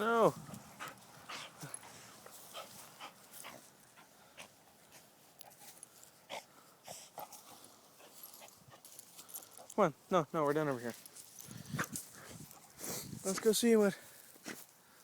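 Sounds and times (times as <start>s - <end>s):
scuffing on ground: 0.3s - 6.2s, 7.0s - 14.8s
dog breathing and snuffling: 0.4s - 9.8s.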